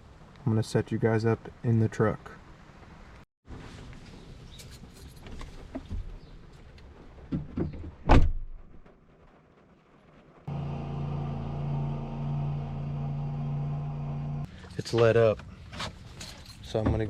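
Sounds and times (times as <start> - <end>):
door slamming: 8.0 - 8.6
engine hum: 10.5 - 14.7.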